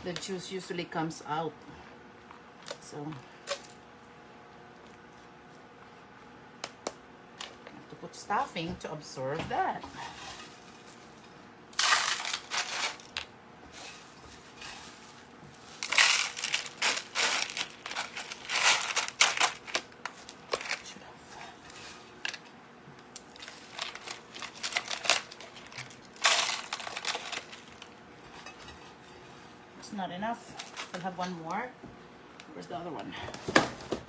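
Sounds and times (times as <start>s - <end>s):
stuffing crunching and crackling: 11.8s - 13.2s, 15.6s - 21.0s, 23.1s - 28.0s.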